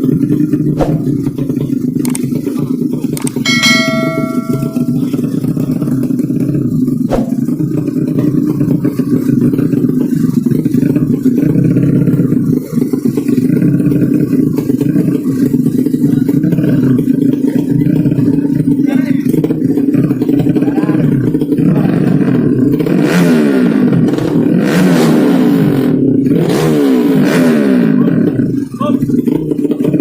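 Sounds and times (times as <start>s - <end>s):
racing motorcycles rumbling: 5.9s - 30.0s
sharp knock: 7.1s - 7.4s.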